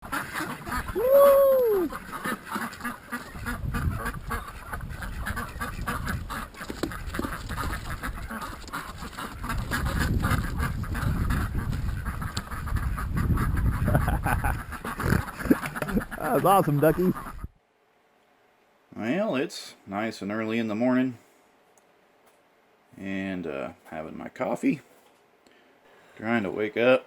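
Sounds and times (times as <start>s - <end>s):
ducks quacking: 0.0s - 17.5s.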